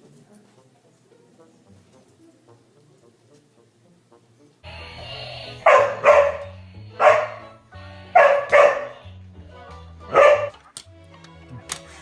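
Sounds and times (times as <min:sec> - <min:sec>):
background music: 0:00.0 - 0:12.0
dog barking: 0:05.6 - 0:07.6, 0:08.2 - 0:09.1, 0:10.1 - 0:10.6.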